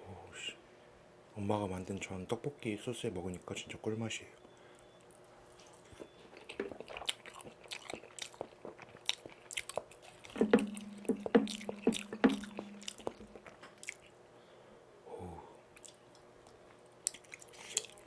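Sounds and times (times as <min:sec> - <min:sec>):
steady low hum: 0:00.0 - 0:18.0
wet chewing and mouth smacks: 0:04.5 - 0:14.2, 0:15.7 - 0:18.0.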